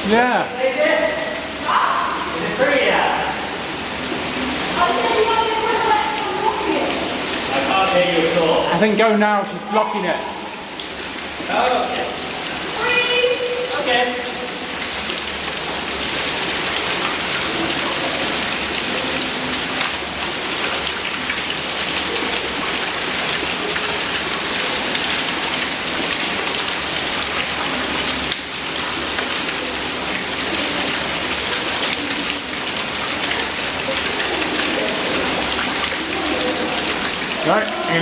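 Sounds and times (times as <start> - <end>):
stream water rushing and splashing: 0.0 - 38.0.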